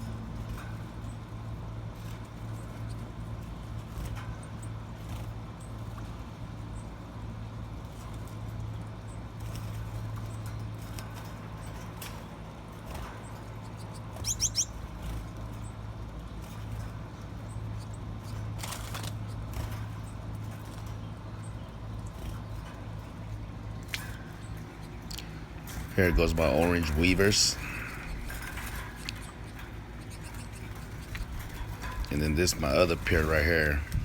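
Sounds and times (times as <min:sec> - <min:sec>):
finches chirping: 0:13.5 - 0:14.9, 0:23.8 - 0:34.0
low hum: 0:23.9 - 0:34.0.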